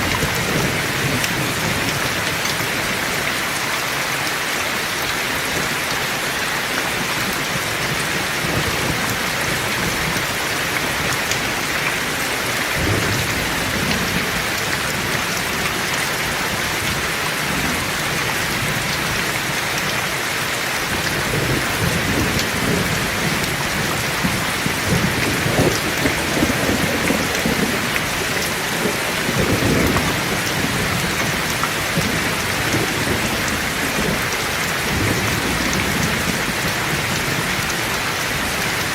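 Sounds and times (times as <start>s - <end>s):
heavy rain: 0.0s - 38.9s
rolling thunder: 8.4s - 15.6s, 21.2s - 37.7s.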